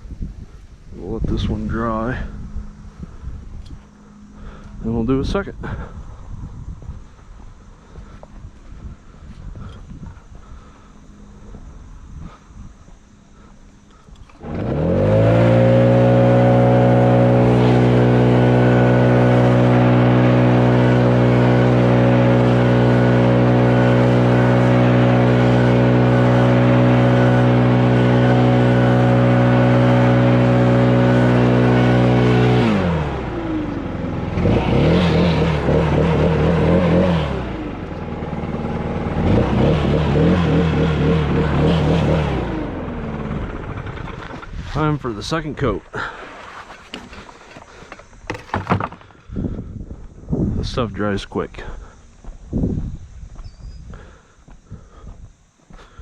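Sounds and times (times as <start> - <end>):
loud motor spinning: 13.3 - 44.6.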